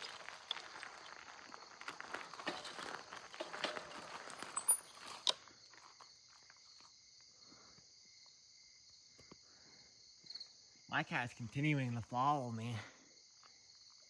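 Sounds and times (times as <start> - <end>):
footsteps crunching and rustling: 0.0 - 7.0
crickets chirping: 0.0 - 14.0.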